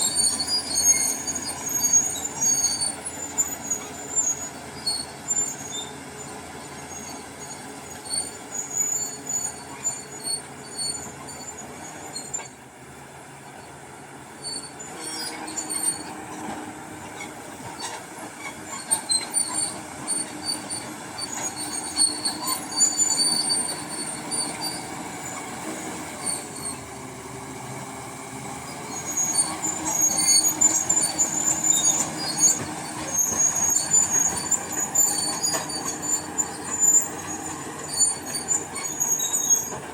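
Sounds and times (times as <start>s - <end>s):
crawler tracks squealing: 0.0s - 12.6s, 13.3s - 39.9s
bulldozer diesel engine running: 0.0s - 39.9s.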